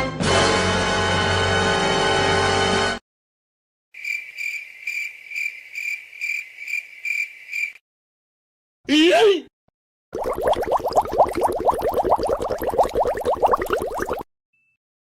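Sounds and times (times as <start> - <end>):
music: 0.0 - 3.0
crickets chirping: 4.0 - 7.8.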